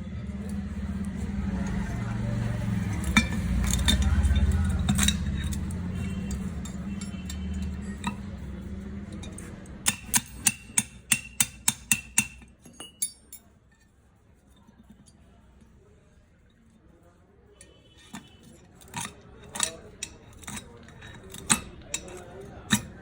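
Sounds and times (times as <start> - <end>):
sharp metallic taps: 9.3 - 13.2.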